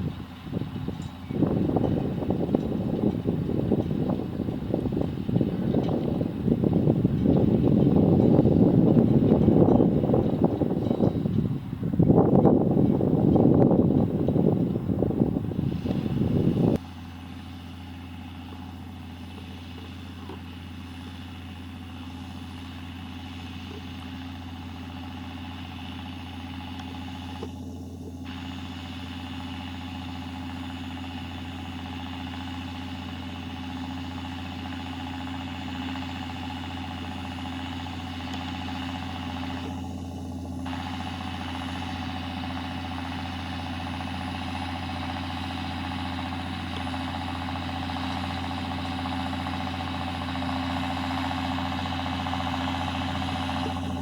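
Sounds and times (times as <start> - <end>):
loud rumbling noise: 0.0 - 16.8
tractor engine running: 0.0 - 54.0.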